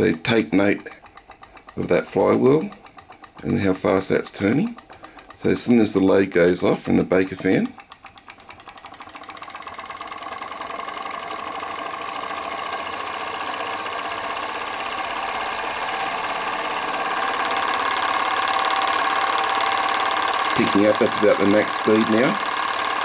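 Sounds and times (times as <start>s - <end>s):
stirling engine running: 0.0s - 23.0s.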